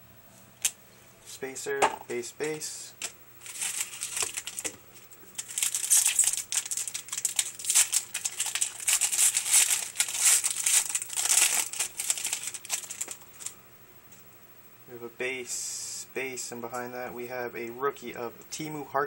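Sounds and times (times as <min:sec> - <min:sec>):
card pack wrapper crinkling: 0:03.0 - 0:13.5.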